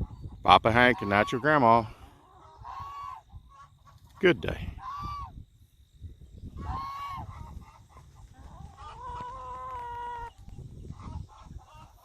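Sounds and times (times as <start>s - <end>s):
low rumble of flock: 0.0s - 12.0s
goose honking: 0.8s - 4.0s, 6.6s - 10.3s.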